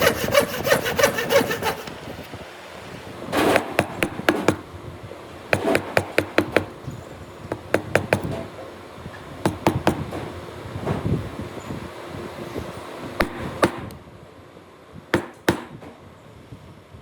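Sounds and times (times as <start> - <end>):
striking tool knocking on wood: 3.4 - 4.7, 5.6 - 6.8, 7.5 - 8.5, 9.5 - 10.3, 15.2 - 15.8.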